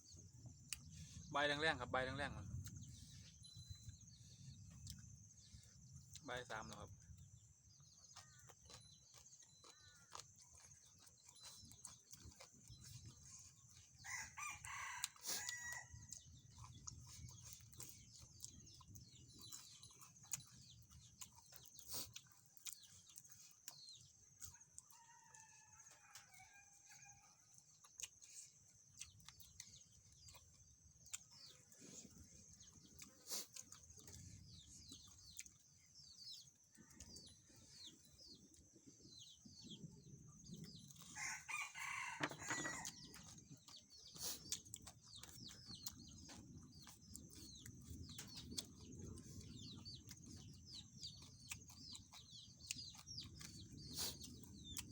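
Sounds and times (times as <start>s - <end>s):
faint rooster crowing: 14.0s - 16.2s, 24.8s - 27.5s, 41.1s - 43.2s.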